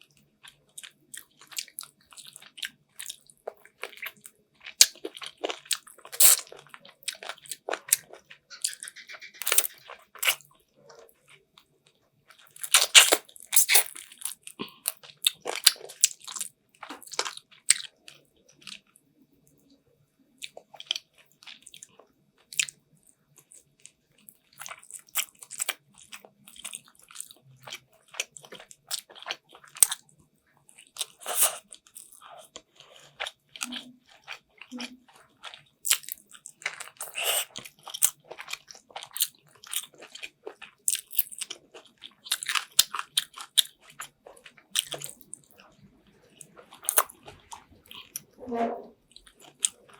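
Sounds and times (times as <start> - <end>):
biting and chewing food: 0.4 - 19.0, 23.4 - 30.1, 30.7 - 48.3
mouth clicks and smacks: 8.0 - 10.4.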